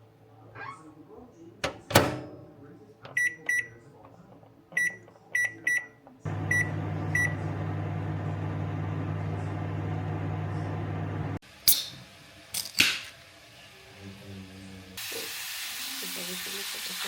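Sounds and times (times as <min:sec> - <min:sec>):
microwave keypad beeps: 0:03.2 - 0:03.8, 0:04.8 - 0:09.7
microwave oven humming: 0:06.3 - 0:11.4.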